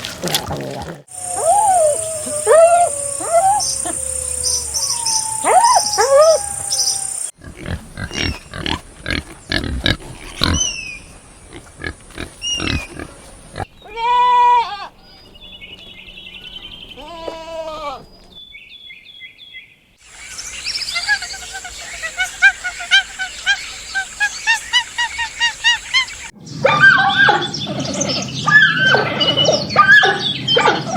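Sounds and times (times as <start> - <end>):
loud pitched animal call: 1.1 - 10.8
high animal trills: 1.1 - 15.2.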